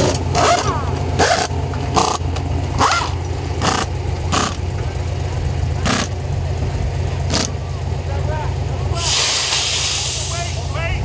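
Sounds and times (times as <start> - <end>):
truck engine idling: 0.0 - 11.0
short sharp hissing bursts: 9.0 - 10.8.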